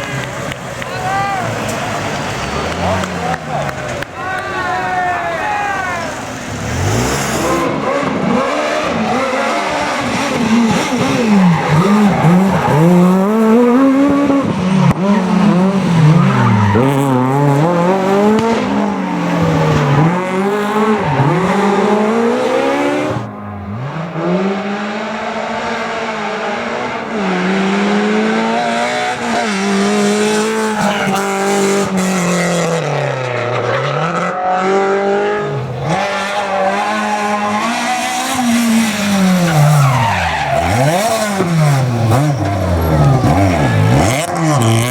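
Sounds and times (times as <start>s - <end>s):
tyre noise sliding: 0.0s - 24.0s, 35.4s - 44.9s
rally car engines revving: 0.0s - 44.9s.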